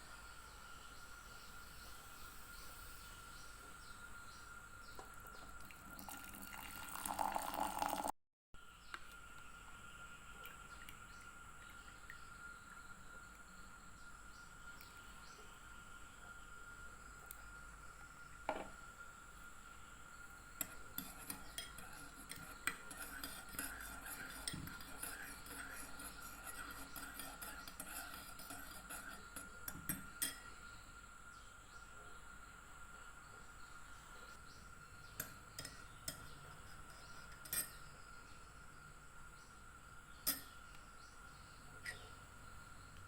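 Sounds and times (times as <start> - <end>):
utensils and dishes clinking: 35.2 - 37.8.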